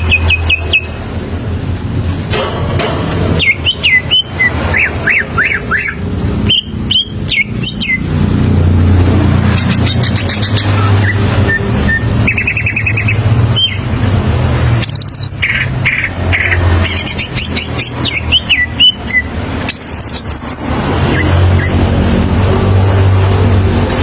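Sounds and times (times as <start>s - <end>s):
bird singing trills and whistles: 0.0s - 1.0s, 3.4s - 8.2s, 9.5s - 13.9s, 14.8s - 21.8s.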